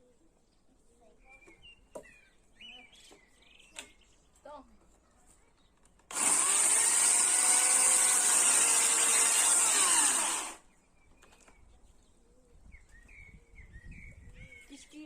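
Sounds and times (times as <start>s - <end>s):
chainsaw sawing through wood: 6.1s - 10.6s.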